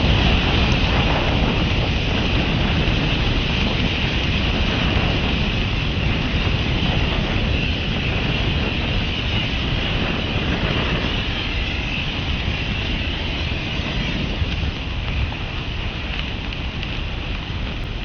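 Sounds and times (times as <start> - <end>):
matches burning crackle: 14.5 - 18.0.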